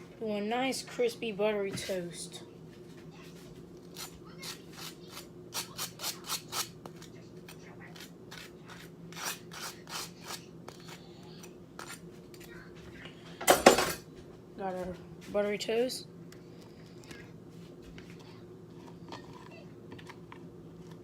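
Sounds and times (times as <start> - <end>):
faint steady hum: 0.0 - 21.0
knife scraping butter on toast: 7.9 - 11.0, 11.8 - 12.0.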